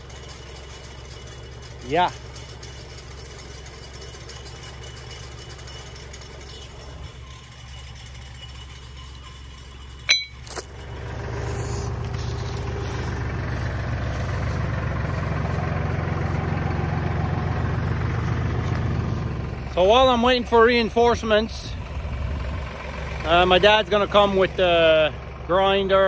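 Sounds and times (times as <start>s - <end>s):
tractor engine idling: 0.0s - 26.0s
sharp metallic clank: 3.7s - 11.2s.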